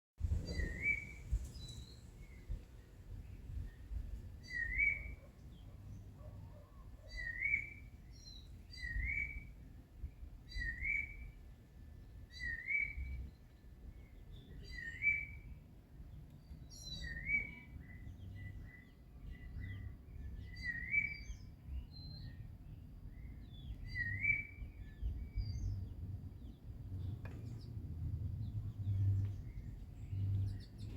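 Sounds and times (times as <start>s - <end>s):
bird singing rising note: 0.4s - 2.5s.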